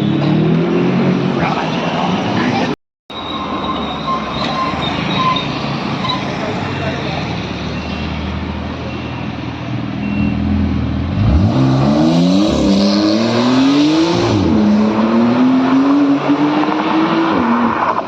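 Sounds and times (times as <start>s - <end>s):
car engine accelerating: 10.3s - 18.0s.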